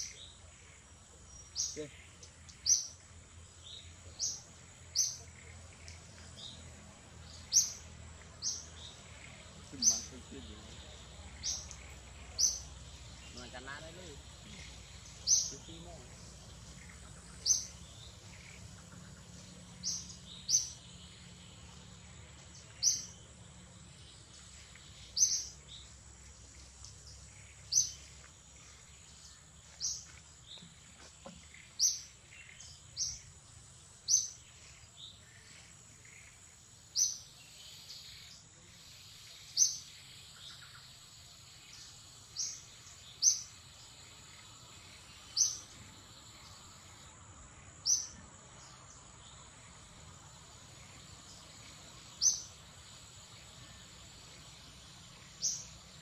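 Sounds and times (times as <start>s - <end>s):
bird chirping: 0.0s - 56.0s.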